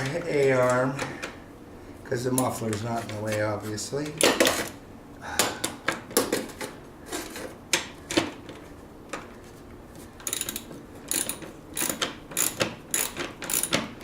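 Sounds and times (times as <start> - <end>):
socket ratchet clicking: 10.2 - 13.9.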